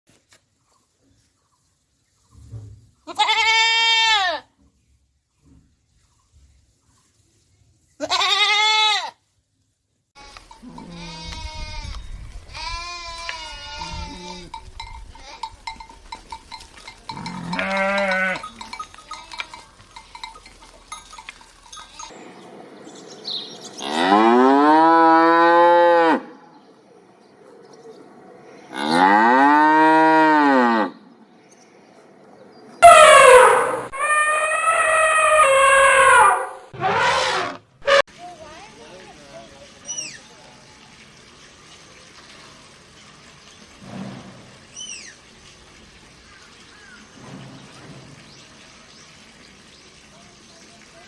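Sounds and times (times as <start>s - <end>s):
cowbells ringing: 10.2s - 11.7s, 13.6s - 23.0s
cattle mooing: 17.1s - 18.5s, 23.8s - 26.3s, 28.7s - 30.9s, 32.8s - 38.0s.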